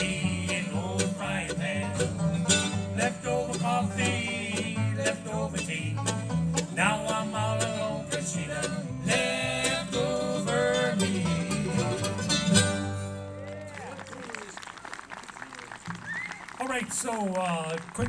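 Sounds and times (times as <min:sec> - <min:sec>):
banjo picking: 0:00.0 - 0:13.4
bluegrass band playing: 0:00.0 - 0:13.6.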